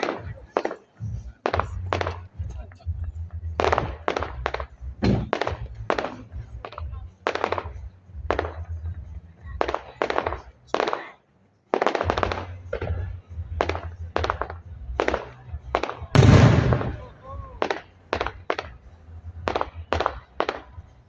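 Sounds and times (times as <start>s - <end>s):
firework shell bangs: 3.6s - 7.8s, 13.6s - 18.7s.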